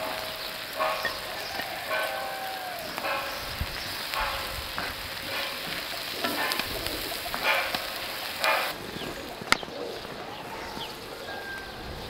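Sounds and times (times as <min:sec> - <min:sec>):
stirring strokes: 0:00.0 - 0:09.5
food sizzling in a pan: 0:00.0 - 0:12.0.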